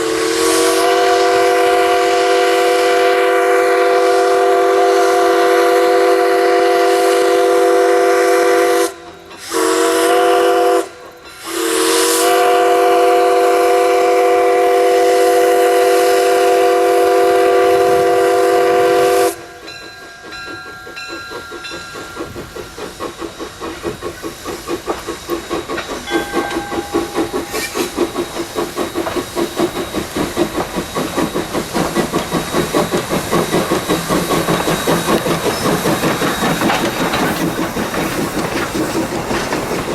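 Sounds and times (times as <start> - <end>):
locomotive steam whistle: 0.0 - 23.1, 25.2 - 30.1.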